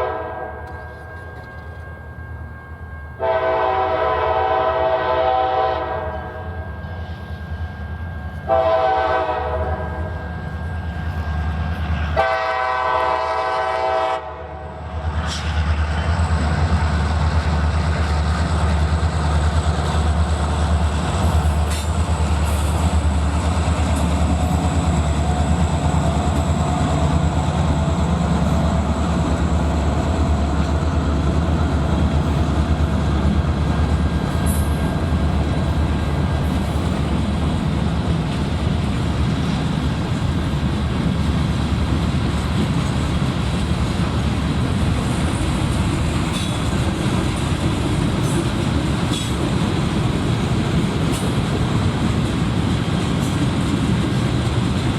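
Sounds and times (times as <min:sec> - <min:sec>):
locomotive air horn blasts: 0:00.0 - 0:01.0, 0:03.2 - 0:06.6, 0:08.4 - 0:10.2, 0:12.1 - 0:14.8
freight train rumbling past: 0:00.0 - 0:54.9.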